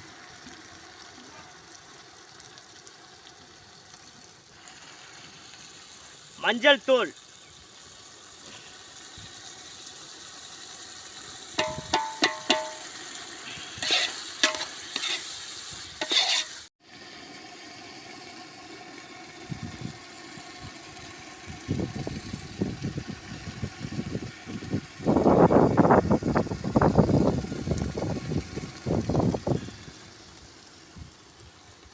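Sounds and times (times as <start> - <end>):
oil sizzling in a pot: 0.0 - 31.9
ladle clinking against metal pot: 11.6 - 12.9.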